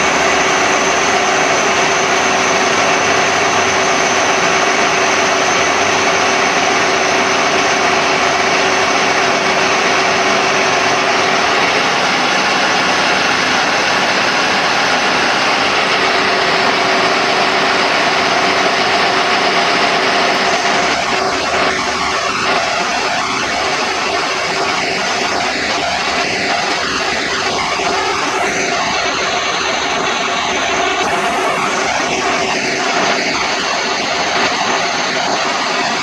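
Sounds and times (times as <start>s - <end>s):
machine humming steadily: 0.0s - 36.0s.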